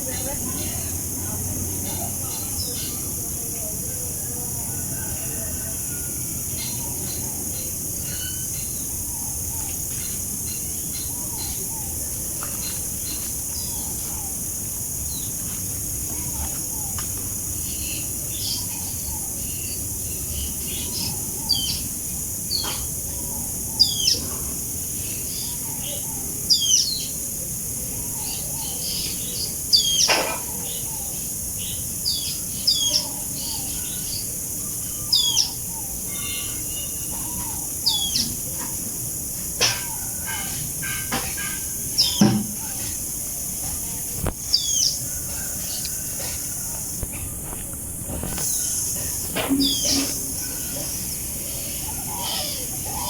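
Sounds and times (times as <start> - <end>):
steady background hiss: 0.0 - 53.0
birds chirping: 27.9 - 53.0.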